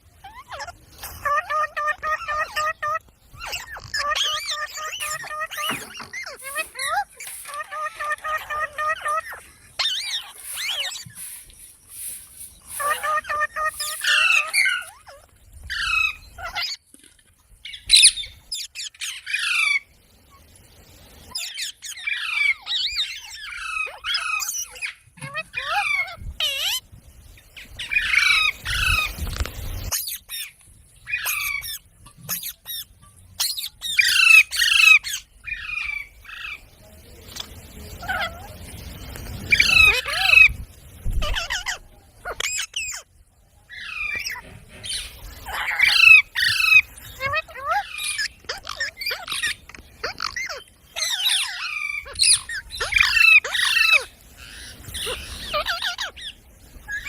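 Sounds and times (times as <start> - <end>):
parrot squawking: 0.2 - 16.8, 21.3 - 26.8, 31.1 - 36.6, 39.5 - 40.6, 41.2 - 43.0, 43.7 - 57.0.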